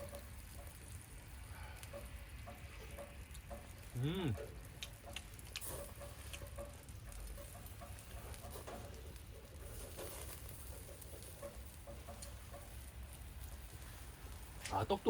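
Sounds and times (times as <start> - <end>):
light rain pattering: 0.0 - 15.0
wood fire crackling: 0.0 - 15.0.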